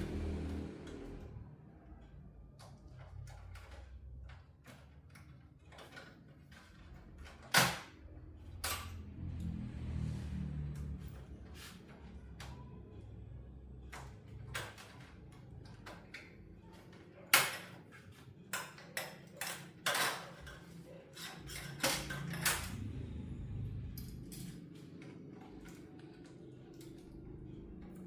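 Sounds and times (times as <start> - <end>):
low steady hum: 20.1 - 28.0.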